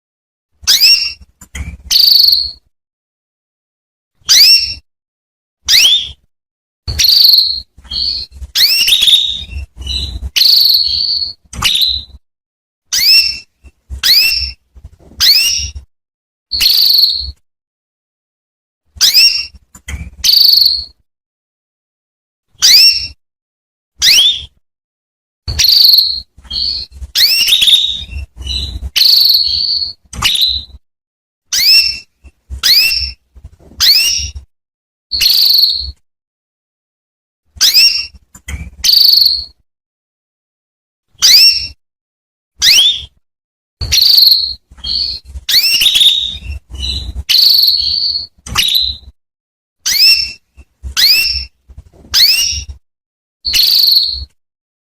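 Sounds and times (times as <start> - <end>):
canary whistled calls: 0.6 - 1.2, 1.9 - 2.6, 4.2 - 4.8, 5.7 - 6.2, 6.9 - 12.2, 12.9 - 14.6, 15.2 - 15.8, 16.5 - 17.4, 19.0 - 19.6, 20.2 - 21.0, 22.6 - 23.2, 24.0 - 24.6, 25.5 - 30.8, 31.5 - 33.2, 33.8 - 34.4, 35.1 - 36.0, 37.6 - 38.2, 38.8 - 39.6, 41.2 - 41.8, 42.6 - 43.2, 43.8 - 49.1, 49.8 - 50.4, 51.0 - 51.5, 52.2 - 52.7, 53.5 - 54.4.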